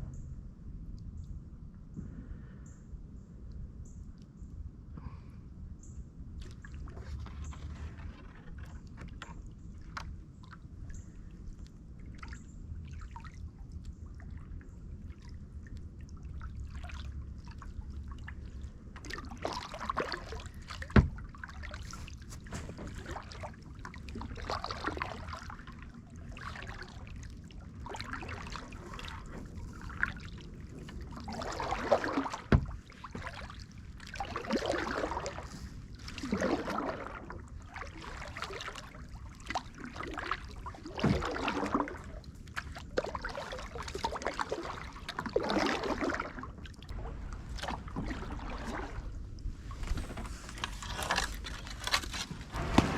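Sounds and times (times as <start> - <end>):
steady low rumble: 0.0 - 8.0, 26.9 - 34.2, 46.4 - 52.9
paddle splashing water: 6.4 - 52.9.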